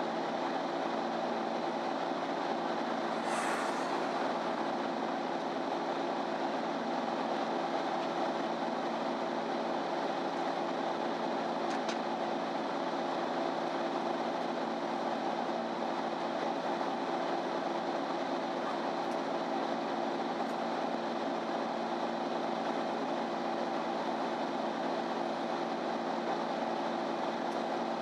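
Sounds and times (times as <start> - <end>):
bus diesel engine and road drone: 0.0 - 28.0
short hiss: 2.9 - 5.5.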